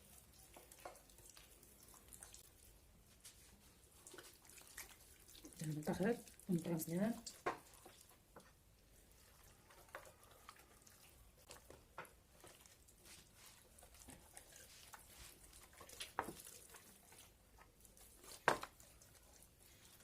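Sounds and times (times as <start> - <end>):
hands squelching marinade: 0.0 - 20.0.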